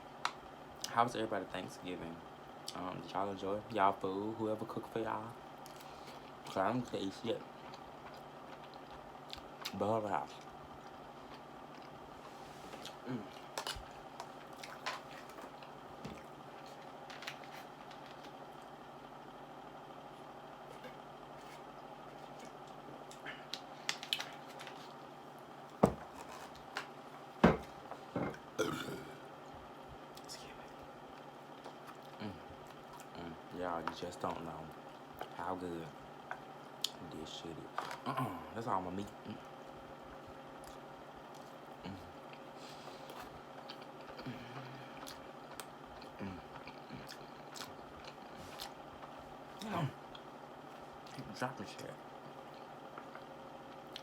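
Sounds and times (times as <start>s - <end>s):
low hums of pleasure: 0.0s - 54.0s
chewing food: 7.4s - 18.8s, 20.6s - 25.1s, 29.5s - 33.2s, 39.2s - 51.2s, 52.2s - 54.0s
eating clicks and smacks: 53.0s - 54.0s.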